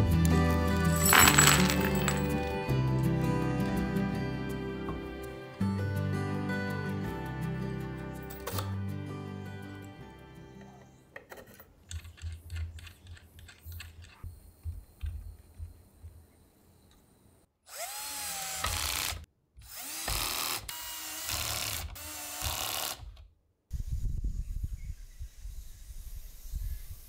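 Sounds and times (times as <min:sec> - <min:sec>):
allen key and wood clicking: 0:11.1 - 0:14.2
cordless drill driving screws: 0:17.7 - 0:23.2.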